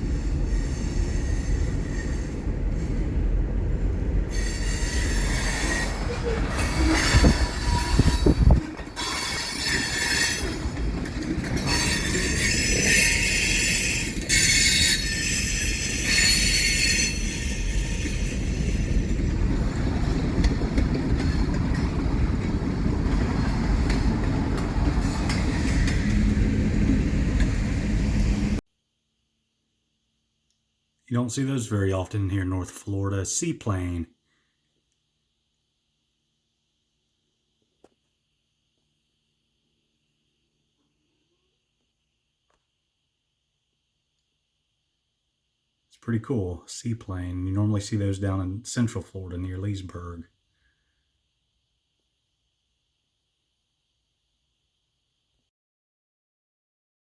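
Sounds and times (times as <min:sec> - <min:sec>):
train wheels squealing on rail: 0:00.0 - 0:28.4
train rumble: 0:00.0 - 0:28.6.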